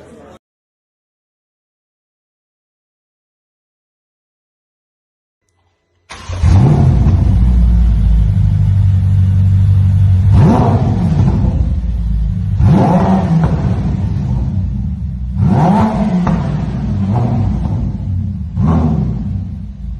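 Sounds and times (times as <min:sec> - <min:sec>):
engine revving blips: 0:05.5 - 0:19.9
car exhaust burbling: 0:06.1 - 0:19.9.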